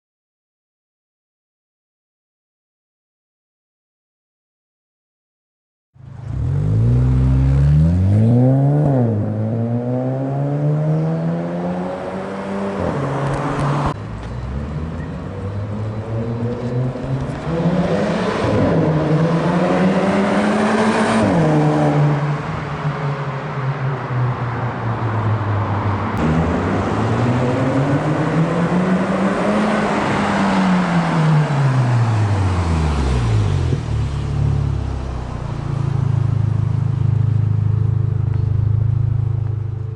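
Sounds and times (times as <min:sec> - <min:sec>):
car engine revving and idling: 0:06.0 - 0:22.7.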